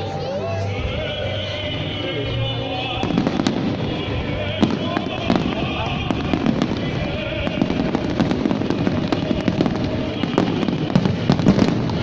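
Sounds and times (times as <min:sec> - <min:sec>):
fireworks crackling: 0:00.0 - 0:12.0
fireworks bangs and pops: 0:02.8 - 0:12.0.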